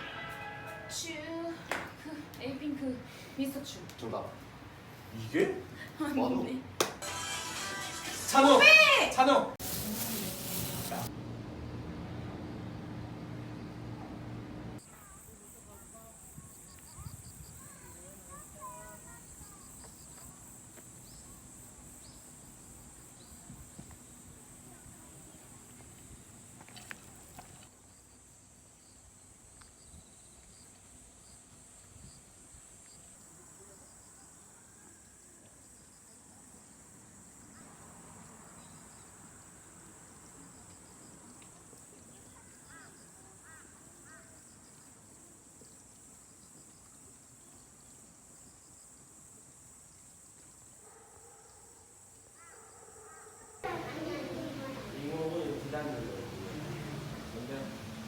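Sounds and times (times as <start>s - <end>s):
fast pulsing insect chirp: 14.8s - 34.6s
insects trilling: 14.8s - 58.0s.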